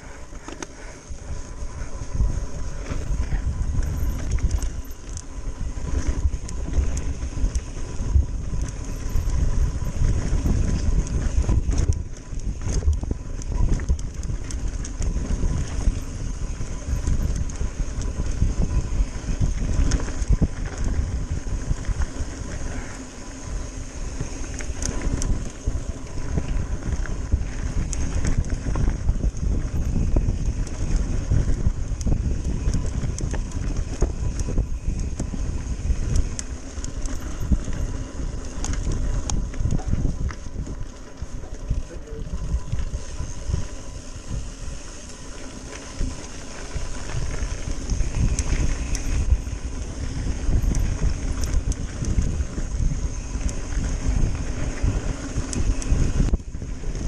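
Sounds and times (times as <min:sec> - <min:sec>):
bike tyre rumble and rattling: 0:00.0 - 0:57.0
wind buffeting microphone: 0:00.0 - 0:57.0.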